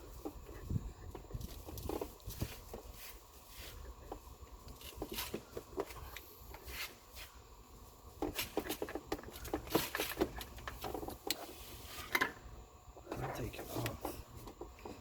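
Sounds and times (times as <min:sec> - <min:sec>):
small clicks and knocks of parts: 0:08.2 - 0:11.5.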